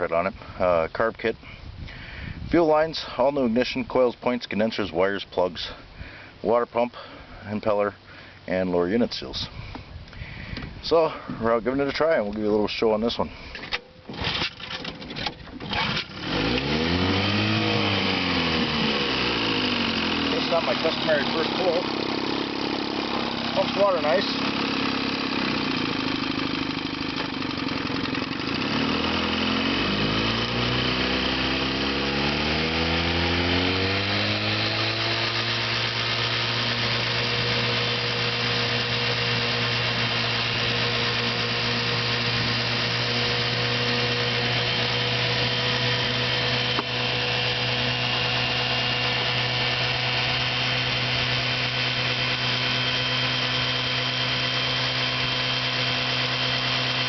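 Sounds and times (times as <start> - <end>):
outboard motor running: 13.4 - 57.0.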